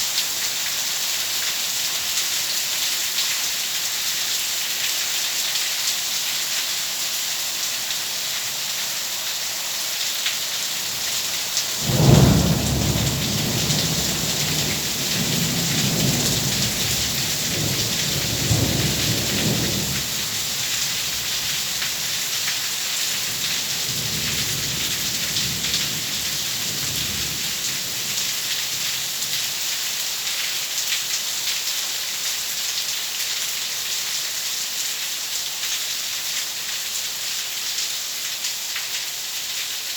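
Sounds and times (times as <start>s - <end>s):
heavy rain: 0.0s - 39.9s
thunder rumbling: 11.8s - 21.8s.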